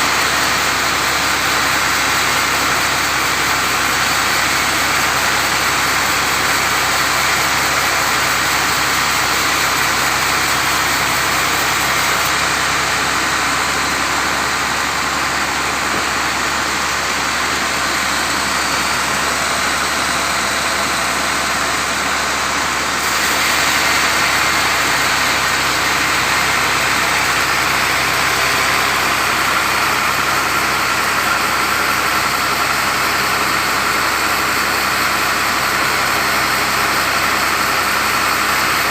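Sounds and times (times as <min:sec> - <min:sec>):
sawmill saw cutting wood: 0:00.0 - 0:38.9.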